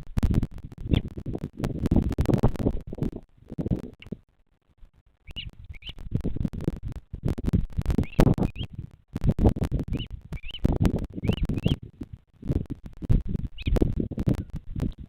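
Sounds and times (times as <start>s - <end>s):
scratchy crackling: 0.0s - 15.0s
bird chick chirping: 5.2s - 6.0s, 7.9s - 8.8s, 9.9s - 11.9s, 13.5s - 14.5s.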